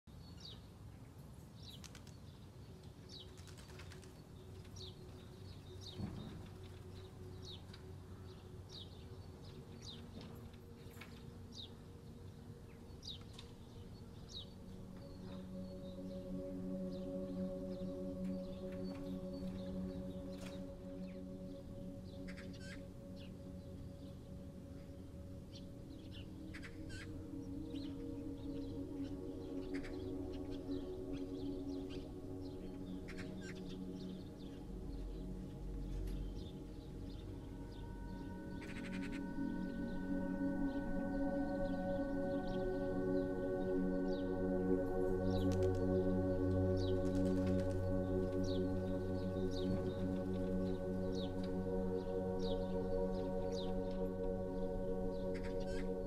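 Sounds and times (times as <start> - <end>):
birds chirping: 0.1 - 56.0
ambient music drone: 0.2 - 56.0.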